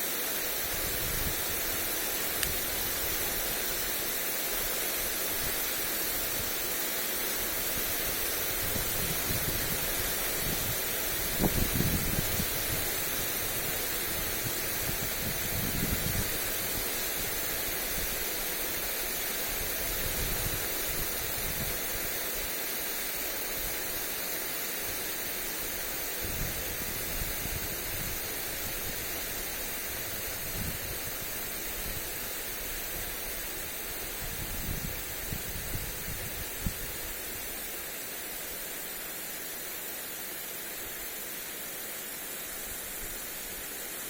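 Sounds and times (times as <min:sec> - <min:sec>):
sprinkler spraying water: 0:00.0 - 0:44.0
wind buffeting microphone: 0:08.6 - 0:16.6.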